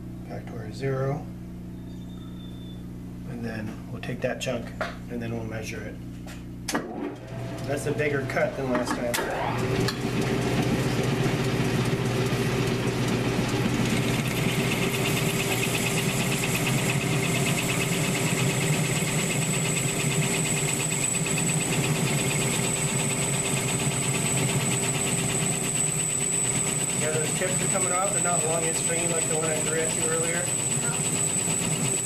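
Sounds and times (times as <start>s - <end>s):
lathe motor humming: 7.2s - 32.0s
fast fine cutting chatter: 27.0s - 31.2s.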